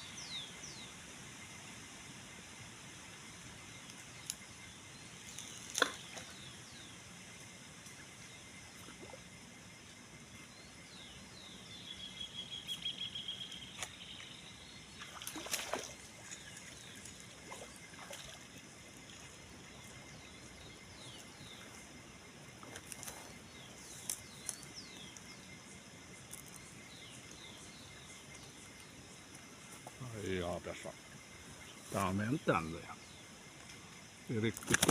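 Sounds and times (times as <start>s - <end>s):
faint steady hiss: 0.0s - 34.9s
birds chirping: 7.8s - 34.9s.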